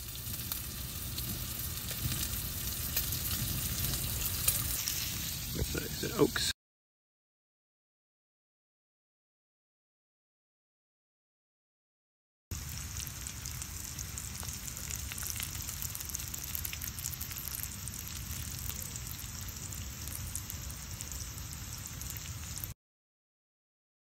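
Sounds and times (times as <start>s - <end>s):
small crackles and pops: 0.0s - 5.3s, 12.6s - 22.8s
vegetables sizzling in a skillet: 0.0s - 6.5s, 12.5s - 22.8s.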